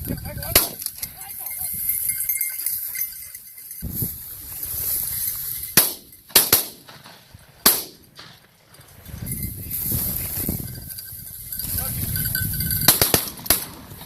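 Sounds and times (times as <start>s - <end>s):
shotgun shots: 0.5s - 0.9s, 5.8s - 8.4s, 12.9s - 14.0s.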